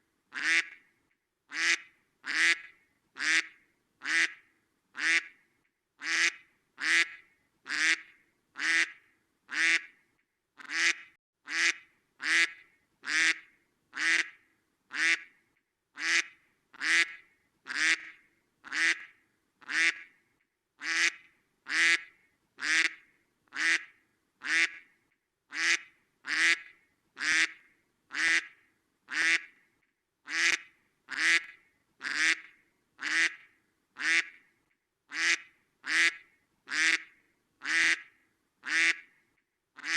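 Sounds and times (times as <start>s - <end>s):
duck quacking: 0.3s - 0.8s, 1.5s - 4.4s, 5.0s - 5.4s, 6.0s - 9.9s, 10.6s - 13.4s, 14.0s - 15.3s, 16.0s - 20.1s, 20.8s - 24.8s, 25.5s - 28.5s, 29.1s - 29.5s, 30.3s - 33.4s, 34.0s - 34.4s, 35.1s - 39.1s.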